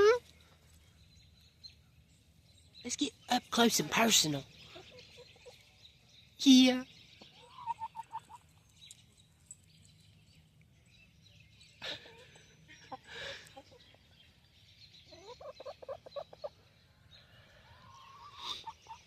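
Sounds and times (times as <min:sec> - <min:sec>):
hens clucking: 0:07.3 - 0:08.4, 0:15.1 - 0:16.6, 0:17.6 - 0:19.0.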